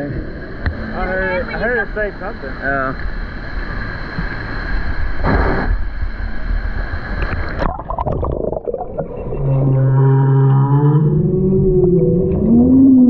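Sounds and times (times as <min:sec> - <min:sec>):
muffled water bubbling: 0:00.2 - 0:13.0
low drawn-out animal call: 0:09.3 - 0:13.0.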